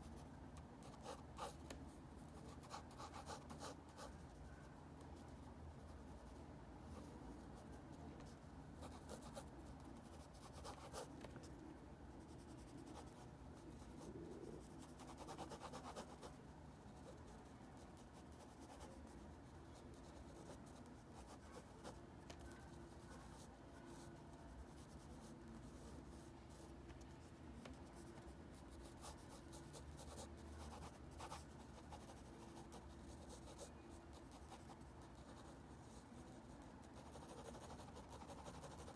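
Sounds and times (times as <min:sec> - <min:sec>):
pencil scratching on paper: 0:36.9 - 0:38.9.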